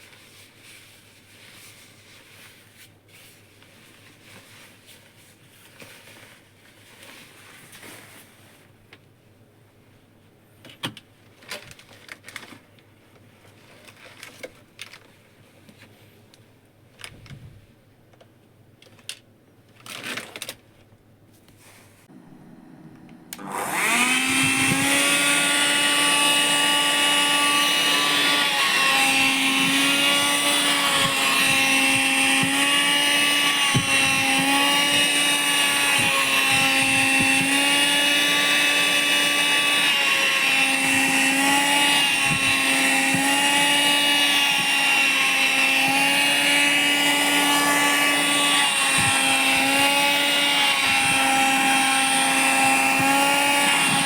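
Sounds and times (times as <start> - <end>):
vacuum cleaner motor whine: 22.1 - 54.0.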